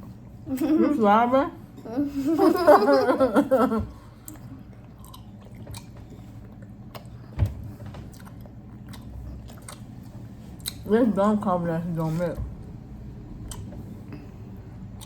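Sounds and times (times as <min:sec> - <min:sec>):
chewing gum: 0:04.2 - 0:10.9.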